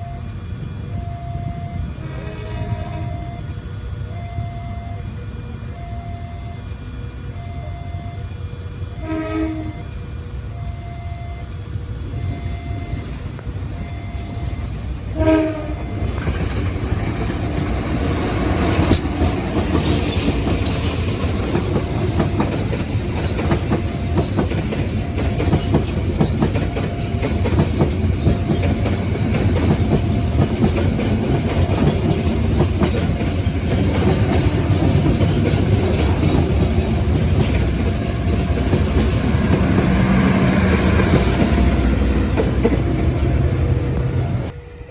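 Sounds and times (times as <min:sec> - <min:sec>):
warning tone beeping: 0:02.6 - 0:06.7, 0:07.3 - 0:09.0, 0:13.7 - 0:14.7
train horn blasts: 0:08.9 - 0:10.0, 0:15.1 - 0:16.2
train wheels rumbling on rail: 0:11.4 - 0:44.9.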